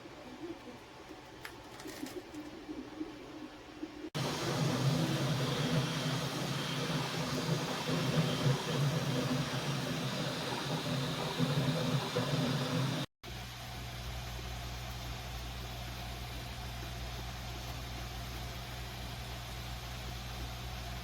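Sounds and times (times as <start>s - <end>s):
printer fans and motors humming: 0.0s - 21.0s
hiss: 4.2s - 13.1s.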